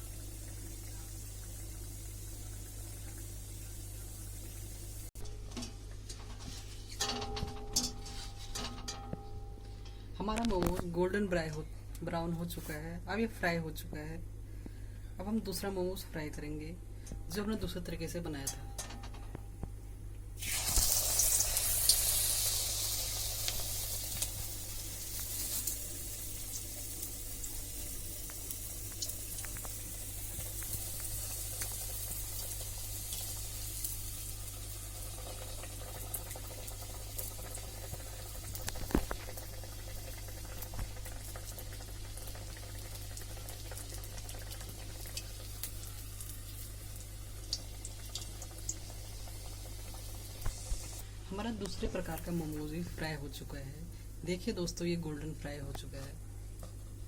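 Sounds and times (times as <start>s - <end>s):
food sizzling in hot oil: 0.0s - 5.2s, 20.4s - 51.0s.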